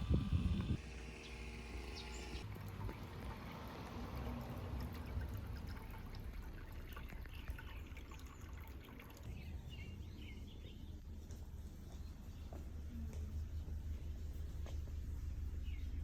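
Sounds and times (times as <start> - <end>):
low outdoor rumble: 0.0 - 16.0
bird chirps: 1.1 - 2.4.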